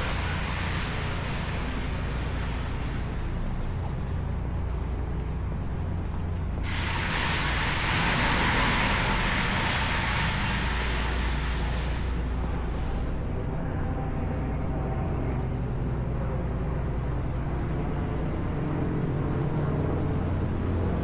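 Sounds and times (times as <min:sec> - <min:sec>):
distant road traffic rumble: 0:00.0 - 0:21.0
loud hiss: 0:06.6 - 0:13.1.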